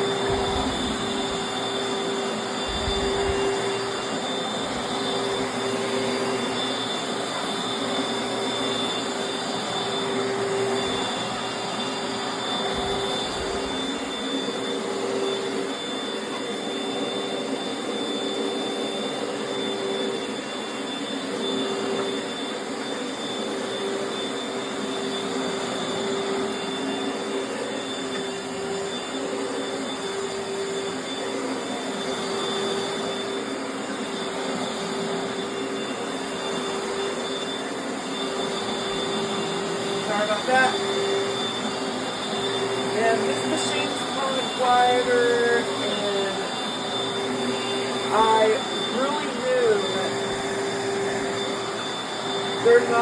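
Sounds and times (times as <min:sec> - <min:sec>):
upright vacuum cleaner running: 0:00.0 - 0:53.0.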